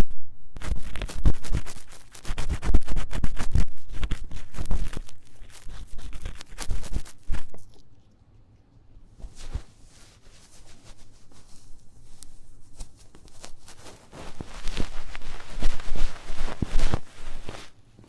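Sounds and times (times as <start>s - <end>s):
ear-cleaning tool scratching: 0.6s - 8.0s, 12.1s - 17.7s
soft rustle: 0.6s - 18.0s.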